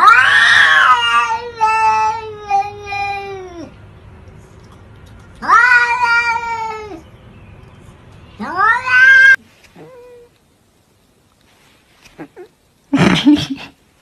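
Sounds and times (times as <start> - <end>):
cat yowling meows: 0.0 - 3.7, 5.4 - 7.0, 8.4 - 10.3.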